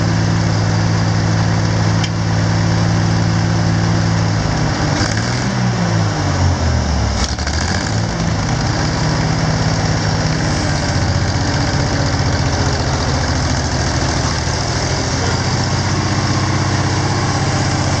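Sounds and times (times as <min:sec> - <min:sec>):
tractor engine running: 0:00.0 - 0:04.9, 0:06.6 - 0:18.0.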